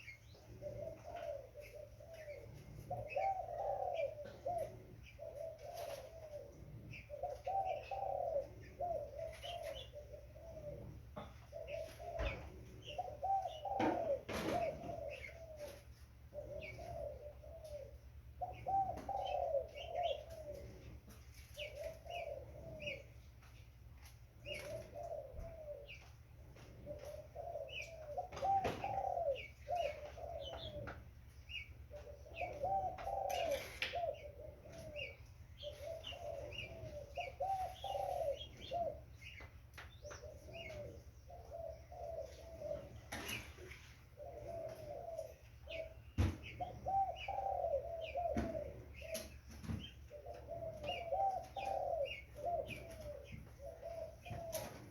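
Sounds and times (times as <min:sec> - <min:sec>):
dove cooing: 0:00.0 - 0:54.9
steady low hum: 0:00.0 - 0:54.9.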